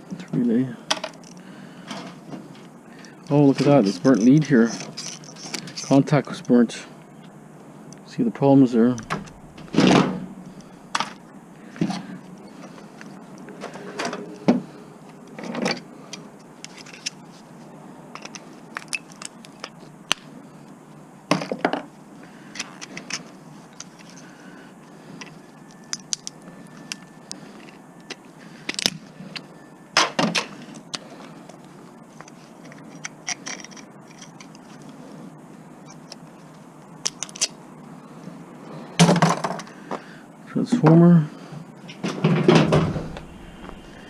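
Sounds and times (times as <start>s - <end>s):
metal and plastic parts clinking: 32.2s - 34.9s
loud knocks: 42.3s - 43.9s.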